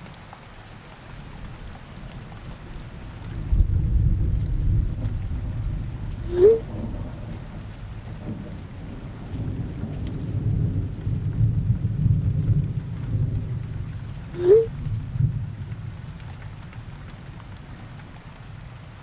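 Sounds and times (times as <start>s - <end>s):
rain: 0.0s - 19.0s
rolling thunder: 2.1s - 18.6s
short rising squeak: 6.3s - 6.7s, 14.4s - 14.7s.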